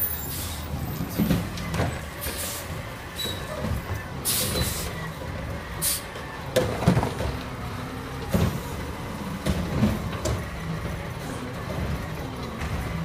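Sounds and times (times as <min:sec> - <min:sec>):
garbage truck engine running: 0:00.0 - 0:13.0.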